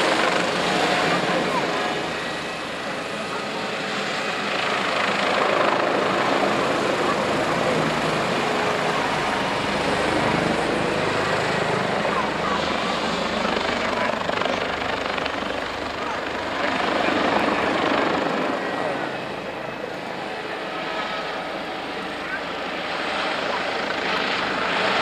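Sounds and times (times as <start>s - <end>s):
helicopter flying past: 0.0s - 25.0s.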